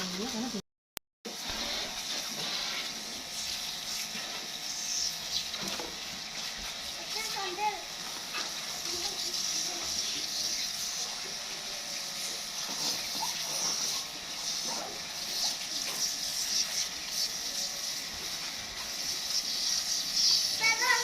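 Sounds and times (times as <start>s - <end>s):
water spray hissing: 1.4s - 21.0s.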